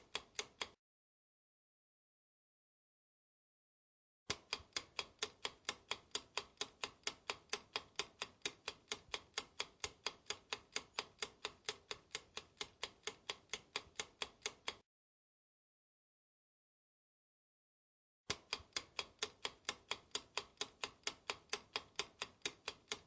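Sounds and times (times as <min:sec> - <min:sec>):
clock ticking: 0:00.0 - 0:00.7, 0:04.3 - 0:14.8, 0:18.3 - 0:23.0.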